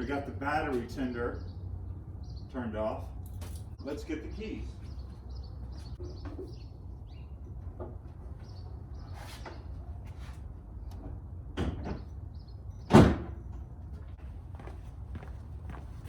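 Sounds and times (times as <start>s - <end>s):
door slamming: 12.9s - 13.4s.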